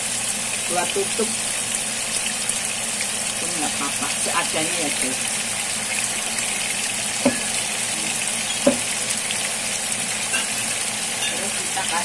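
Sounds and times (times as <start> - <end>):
chicken sizzling in a wok: 0.0 - 12.0.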